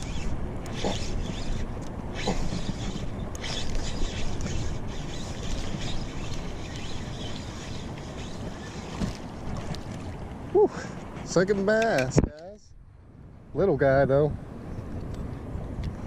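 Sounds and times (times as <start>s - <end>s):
fishing reel winding: 0.0s - 9.0s
water splashes: 1.7s - 11.4s.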